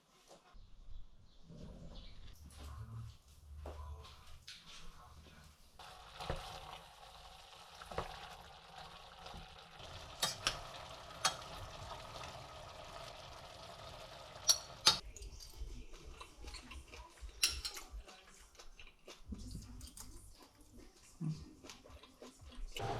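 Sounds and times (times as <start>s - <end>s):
food sizzling in a pan: 5.8s - 15.0s
utensil clinking against pan: 14.4s - 15.0s.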